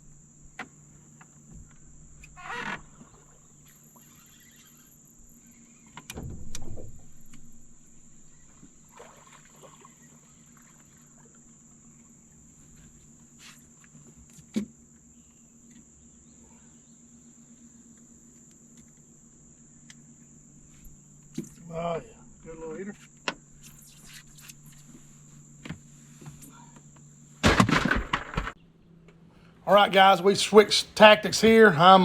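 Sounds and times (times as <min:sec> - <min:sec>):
high-pitched insect buzz: 0:02.4 - 0:05.9.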